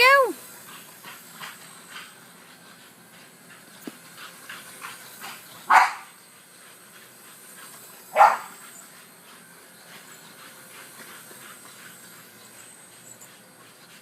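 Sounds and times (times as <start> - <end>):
dog barking: 5.7 - 6.1, 8.1 - 8.5.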